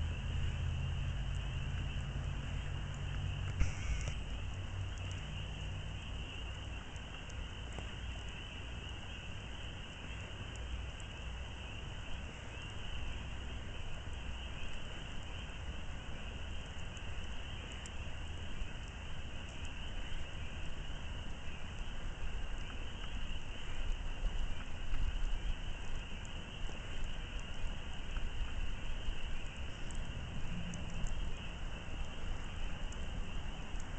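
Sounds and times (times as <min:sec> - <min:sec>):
low rumble: 0:00.0 - 0:06.3
campfire crackling: 0:00.0 - 0:33.9
crickets chirring: 0:00.0 - 0:33.9.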